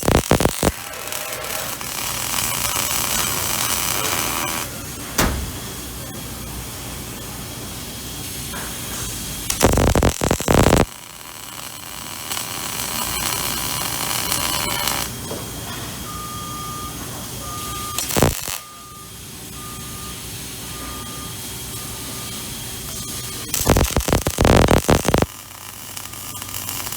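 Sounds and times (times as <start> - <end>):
welding arc crackling: 0.0 - 6.1, 8.2 - 15.2, 17.6 - 18.7, 21.4 - 26.9
workshop hiss: 0.0 - 9.9, 14.4 - 23.5.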